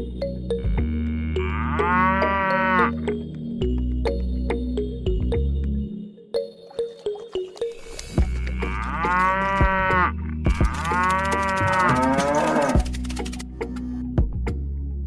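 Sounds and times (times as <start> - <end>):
cow mooing: 0.6 - 3.0, 8.3 - 12.8.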